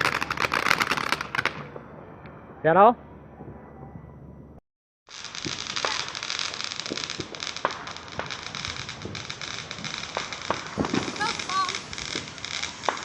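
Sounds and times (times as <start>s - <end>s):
firework crackling and popping: 0.0s - 1.8s, 5.1s - 13.0s.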